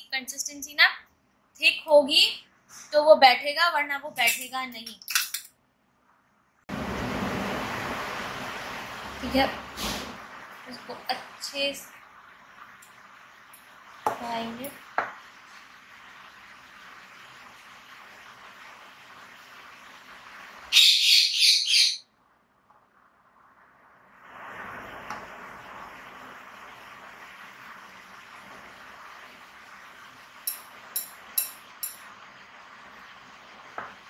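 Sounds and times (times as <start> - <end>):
faint hiss: 0.0 - 3.5, 6.7 - 20.8, 22.4 - 34.0
bird chirping: 20.8 - 22.0.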